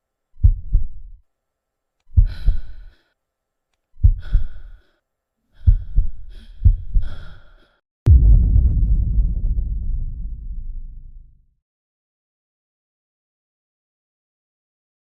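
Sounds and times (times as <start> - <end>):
heavy breath: 2.2 - 3.2, 4.1 - 7.8
heartbeat thumps: 8.1 - 11.4.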